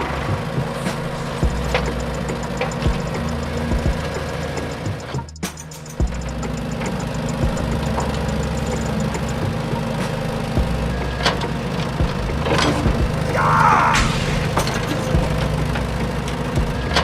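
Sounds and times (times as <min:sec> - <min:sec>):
tractor engine idling: 0:00.0 - 0:17.0.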